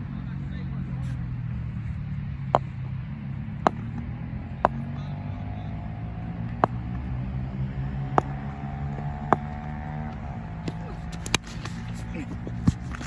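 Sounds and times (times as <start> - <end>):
steady low hum: 0.0 - 13.0
cricket ball knocks: 3.6 - 5.2, 6.4 - 13.0.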